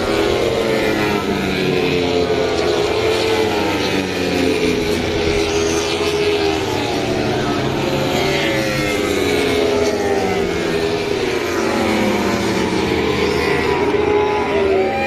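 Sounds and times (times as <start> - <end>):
racing motorcycle engines revving: 0.0 - 15.0.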